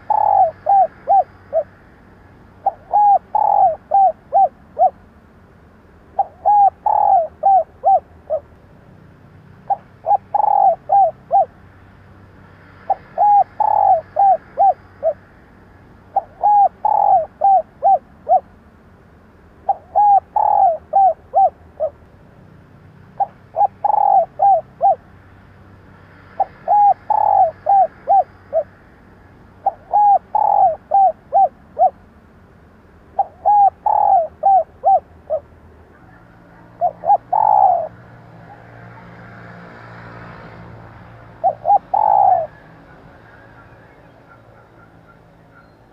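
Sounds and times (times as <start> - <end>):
dove cooing: 0.0 - 1.8, 2.6 - 5.1, 6.1 - 8.5, 9.6 - 11.6, 12.8 - 15.2, 16.1 - 18.5, 19.6 - 22.0, 23.2 - 25.1, 26.4 - 28.8, 29.6 - 32.0, 33.1 - 39.2, 41.3 - 45.9.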